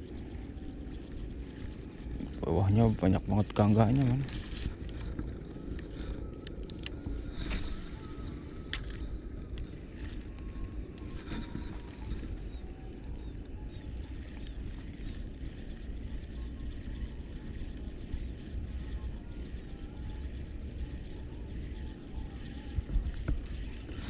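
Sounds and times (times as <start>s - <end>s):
low rumble: 0.0s - 16.0s
insects trilling: 0.0s - 24.0s.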